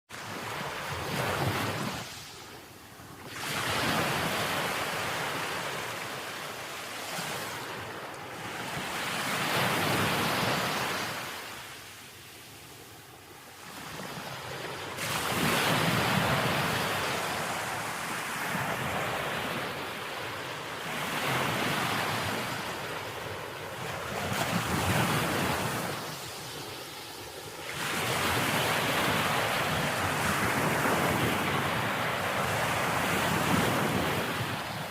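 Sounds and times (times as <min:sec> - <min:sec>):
ocean waves breaking on a beach: 0:00.1 - 0:34.9
wind on microphone: 0:13.8 - 0:34.9.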